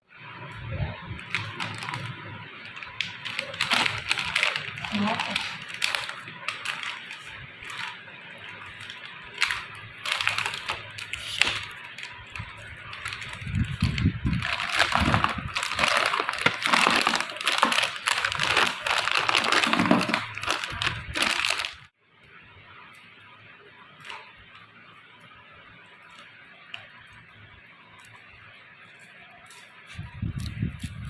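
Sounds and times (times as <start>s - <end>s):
foil wrappers crinkling: 1.2s - 21.9s.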